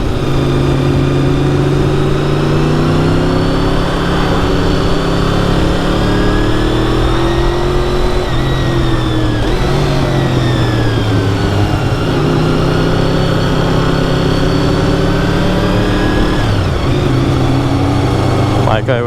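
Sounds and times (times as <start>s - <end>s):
motorcycle engine running: 0.0s - 19.0s
wind rushing: 0.7s - 12.1s.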